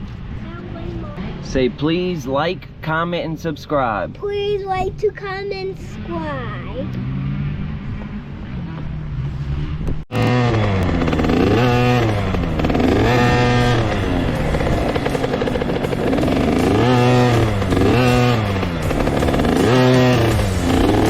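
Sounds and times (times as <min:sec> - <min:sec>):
dirt bike engine revving: 0:06.8 - 0:21.0.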